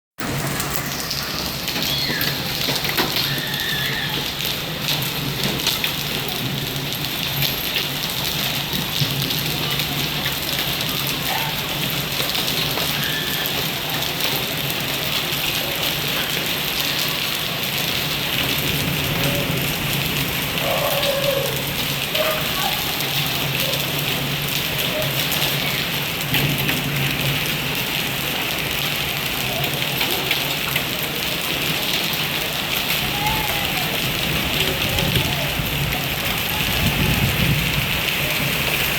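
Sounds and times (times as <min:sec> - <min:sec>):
rain falling: 0:00.2 - 0:38.9.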